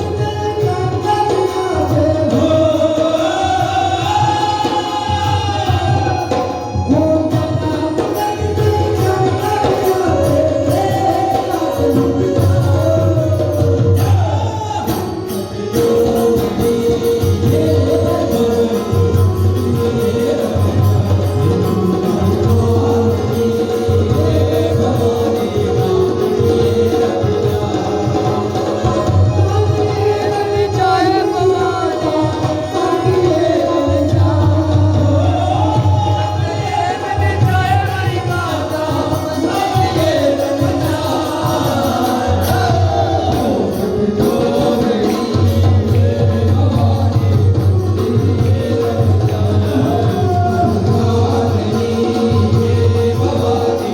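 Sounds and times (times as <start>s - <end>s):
tabla drum beat: 0.0s - 53.9s
voices singing devotional song: 0.0s - 53.9s.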